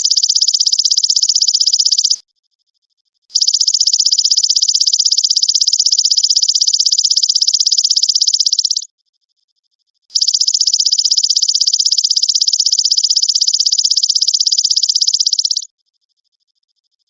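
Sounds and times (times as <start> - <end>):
grasshopper high-pitched pulsing trill: 0.0 - 2.2, 3.3 - 8.9, 10.1 - 15.7.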